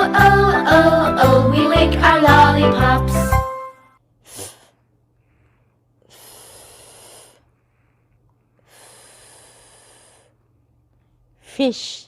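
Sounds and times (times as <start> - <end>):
person making a hissing fff sound: 4.2 - 4.8, 6.1 - 7.4.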